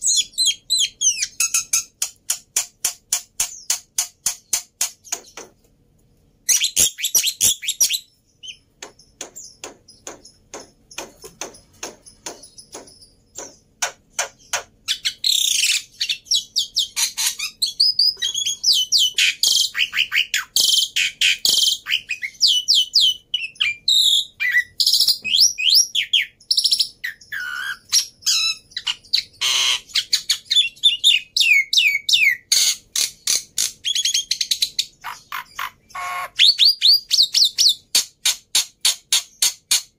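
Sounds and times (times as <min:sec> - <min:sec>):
bird whistled calls: 0:06.5 - 0:08.6
bird chattering notes: 0:34.8 - 0:37.8.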